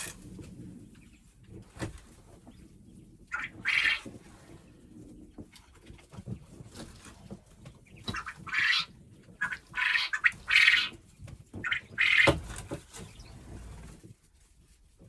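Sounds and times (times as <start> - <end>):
game birds squawking: 3.3 - 4.1, 8.1 - 11.0, 11.6 - 12.4.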